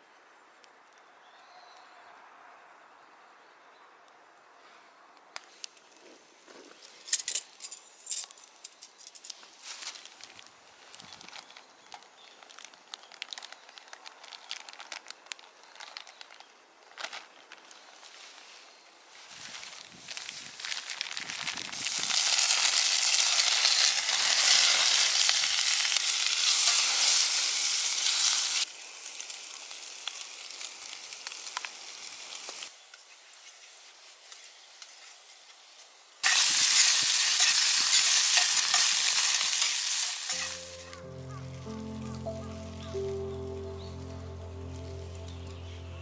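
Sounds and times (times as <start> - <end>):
noodles sizzling in a pan: 20.1 - 41.6.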